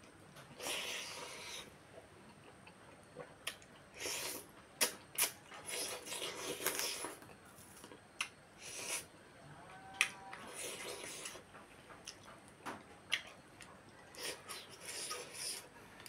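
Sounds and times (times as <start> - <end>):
wet chewing and lip-smacking: 2.3 - 7.3, 13.0 - 15.7.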